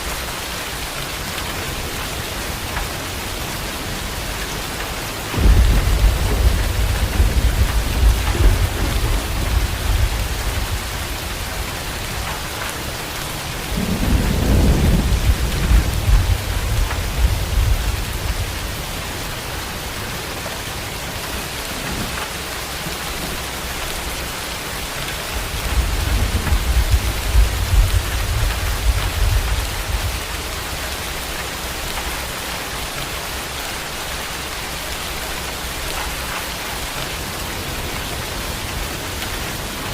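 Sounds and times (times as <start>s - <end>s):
steady rain falling: 0.0s - 39.9s
low rumbles of thunder: 1.7s - 22.2s, 24.8s - 33.1s.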